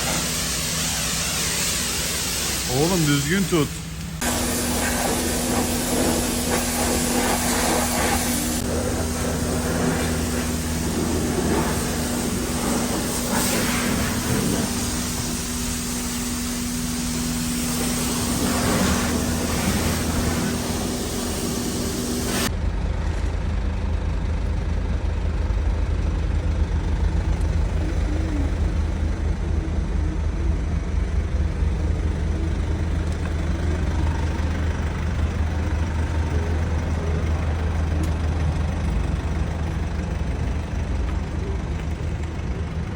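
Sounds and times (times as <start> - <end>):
pressure washer spraying water: 0.0 - 22.5
low steady rumble: 0.0 - 42.9
pump hum: 3.8 - 23.4.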